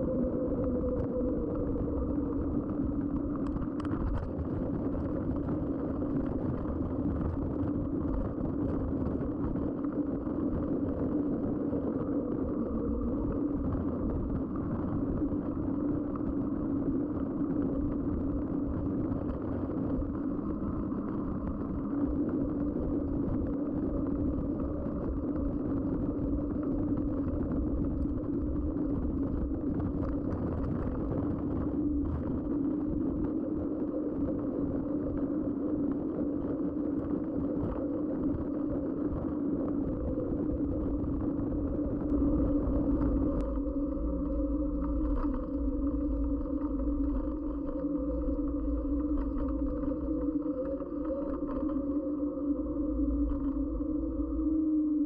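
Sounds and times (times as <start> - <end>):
bike tyres humming on road: 0.0 - 55.0.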